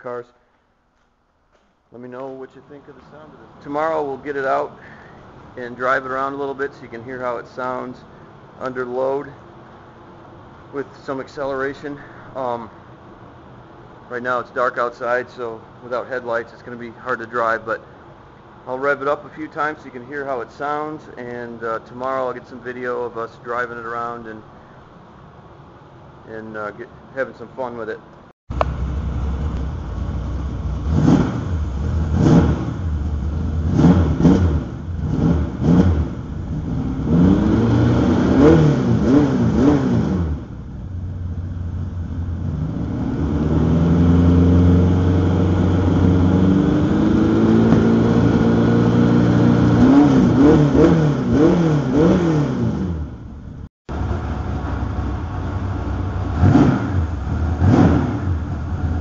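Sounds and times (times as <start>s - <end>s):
car engine idling and revving: 28.5s - 59.0s.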